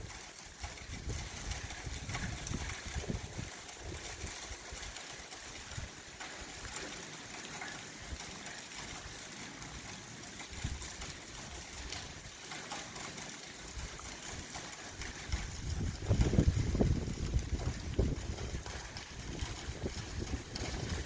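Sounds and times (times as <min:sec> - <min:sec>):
wind rumble on microphone: 0:00.0 - 0:06.8, 0:10.5 - 0:12.4, 0:13.7 - 0:21.0
rain falling on paving: 0:00.0 - 0:21.0.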